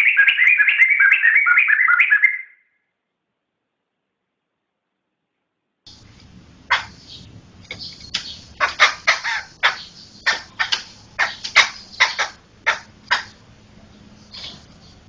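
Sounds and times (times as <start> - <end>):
bird chattering calls: 0.0 - 2.6, 6.6 - 15.0.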